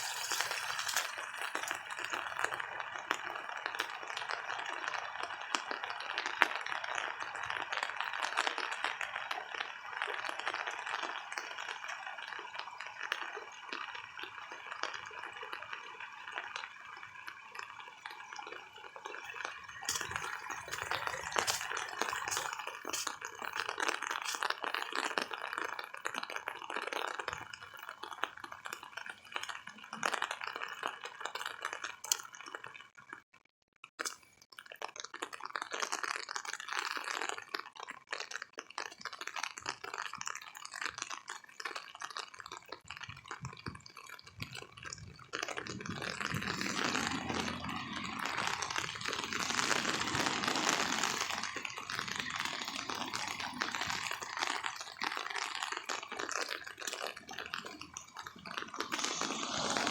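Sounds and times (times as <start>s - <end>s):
heavy rain falling: 19.8s - 23.6s, 45.8s - 54.4s, 58.9s - 59.9s.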